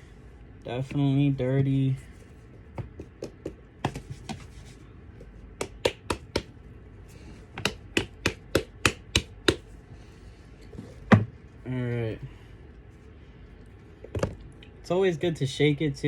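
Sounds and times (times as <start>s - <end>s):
sneaker knocking on hard surface: 2.7s - 4.4s.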